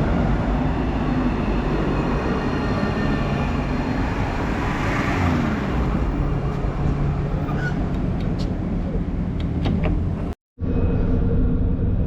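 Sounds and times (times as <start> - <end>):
tram rumbling: 0.0 - 12.0.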